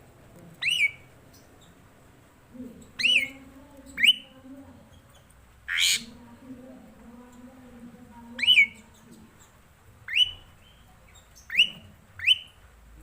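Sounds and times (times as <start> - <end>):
harsh rasping bird call: 5.7 - 6.1.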